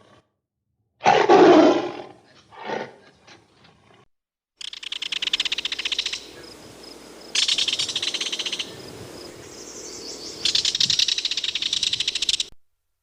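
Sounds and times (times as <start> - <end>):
insect chirping in buzzy pulses: 4.6 - 12.5.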